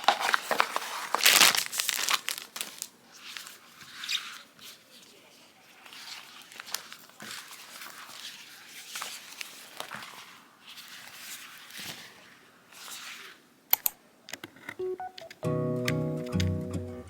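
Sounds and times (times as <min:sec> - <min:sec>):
packaging rustling: 0:00.0 - 0:13.4.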